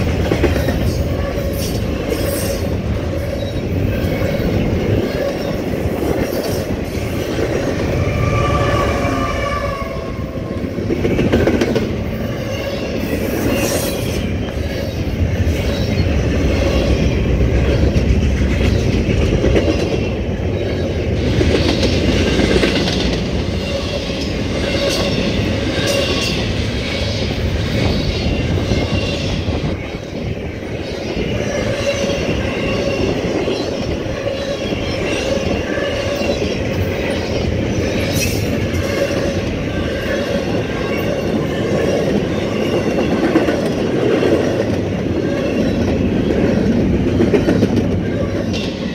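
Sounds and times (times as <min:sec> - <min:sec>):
wavering wheel squeal: 0:03.4 - 0:10.8
train wheels clacking over rail joints: 0:10.8 - 0:14.7.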